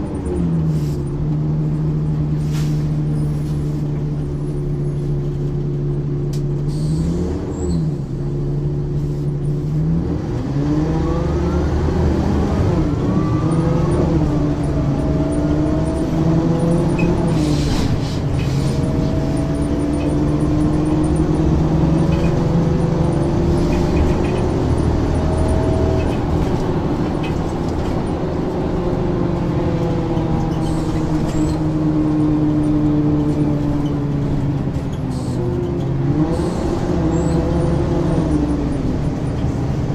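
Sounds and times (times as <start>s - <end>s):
bus diesel engine shifting gears: 0.0s - 39.9s.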